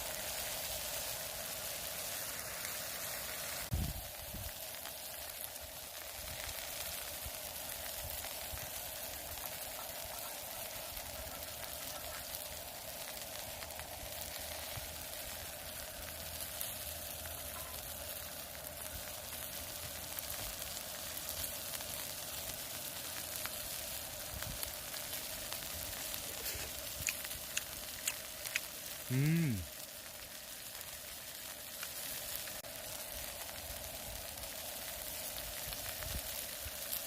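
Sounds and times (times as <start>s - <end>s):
beef sizzling on a griddle: 0.0s - 37.0s.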